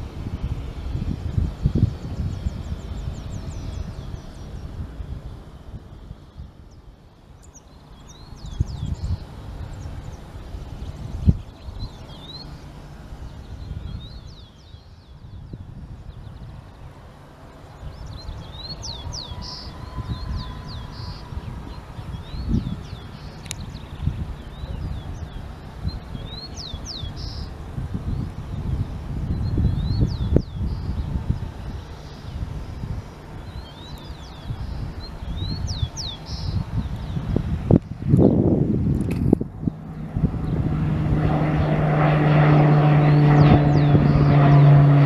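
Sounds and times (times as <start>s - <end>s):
low rumbling noise: 0.0s - 45.0s
small birds chirping: 6.1s - 41.0s
small bird chirping: 33.4s - 37.4s.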